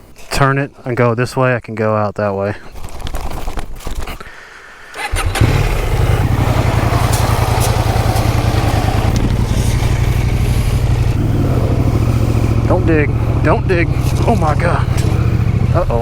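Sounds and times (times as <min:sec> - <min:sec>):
motorcycle engine starting and idling: 0:05.0 - 0:16.0
clicks: 0:06.7 - 0:11.1.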